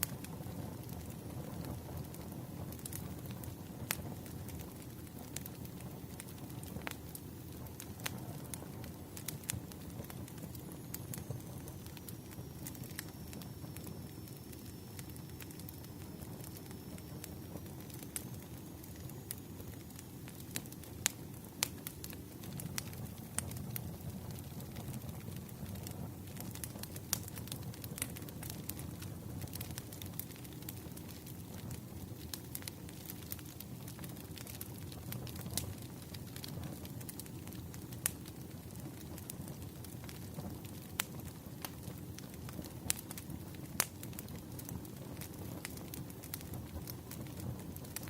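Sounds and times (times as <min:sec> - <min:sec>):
firewood crackling and popping: 0:00.0 - 0:48.0
low rumble of flames: 0:00.0 - 0:48.0.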